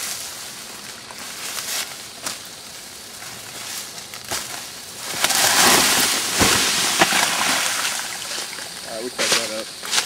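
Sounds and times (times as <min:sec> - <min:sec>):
water splashing and churning: 0:05.5 - 0:08.6.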